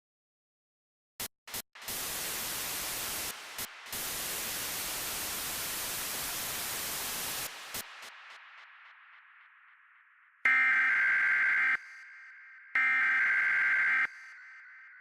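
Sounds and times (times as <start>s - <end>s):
electronic static hiss: 1.8s - 8.6s.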